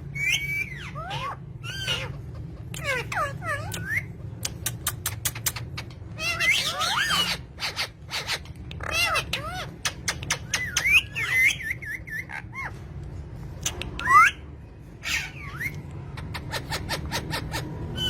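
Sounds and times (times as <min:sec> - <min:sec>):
steady low hum: 0:00.0 - 0:18.0
bird squawks and whistles: 0:00.1 - 0:02.2, 0:02.8 - 0:12.8, 0:13.6 - 0:14.4, 0:15.0 - 0:18.0
sharp clicks: 0:04.4 - 0:05.6.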